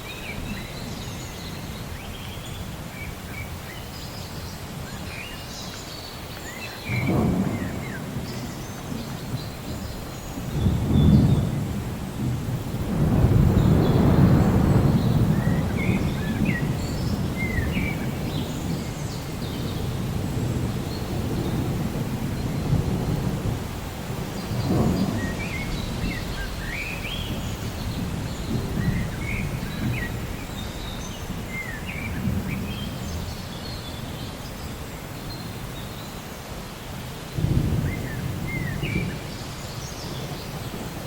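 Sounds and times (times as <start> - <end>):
distant thunder rumbling: 6.8 - 34.6, 37.4 - 41.0.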